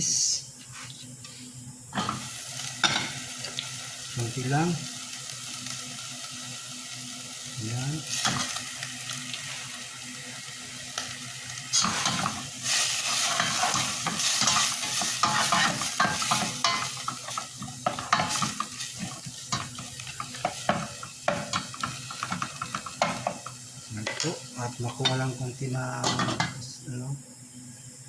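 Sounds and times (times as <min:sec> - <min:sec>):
chicken sizzling in a pan: 0:02.0 - 0:26.7
utensil scraping a pan: 0:11.7 - 0:23.4.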